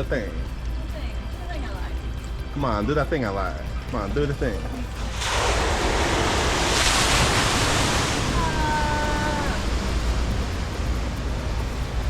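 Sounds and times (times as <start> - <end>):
water surging into tank: 5.0 - 11.6.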